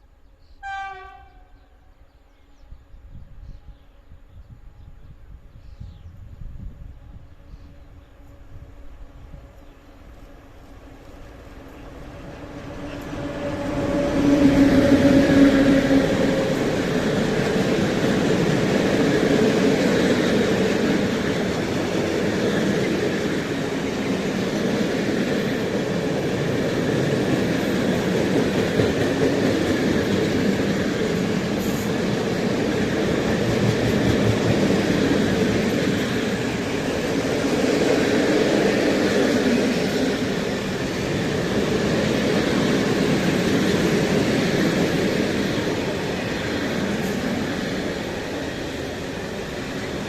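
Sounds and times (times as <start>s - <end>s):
train passing: 6.4s - 50.0s.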